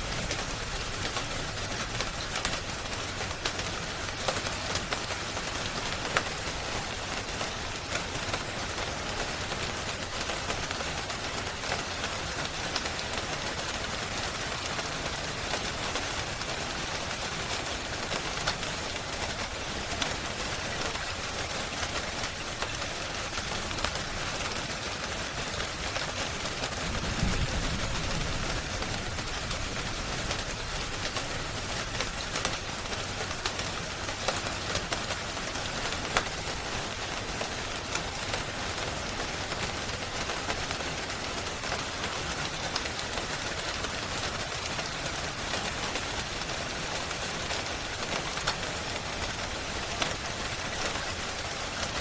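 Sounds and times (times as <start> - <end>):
wood fire popping and crackling: 0.0 - 6.6, 17.8 - 38.5
rain hiss: 0.0 - 52.0.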